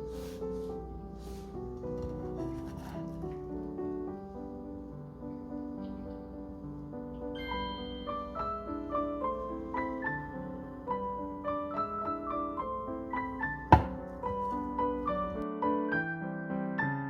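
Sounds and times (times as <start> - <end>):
gentle piano music: 0.0 - 17.0
sharp knock: 13.7 - 14.0.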